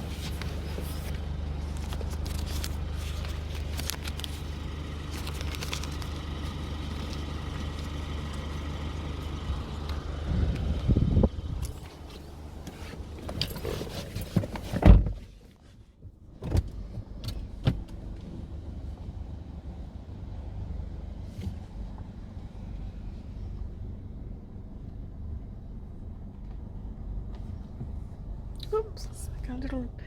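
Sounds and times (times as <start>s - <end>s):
car engine rumbling: 0.0s - 30.0s
car door shutting: 11.7s - 15.3s, 16.4s - 18.0s.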